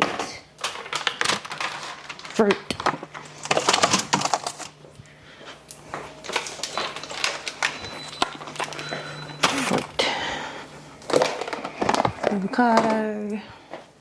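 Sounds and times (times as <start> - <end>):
food containers clattering: 0.0 - 4.8, 6.2 - 10.2, 11.0 - 13.2.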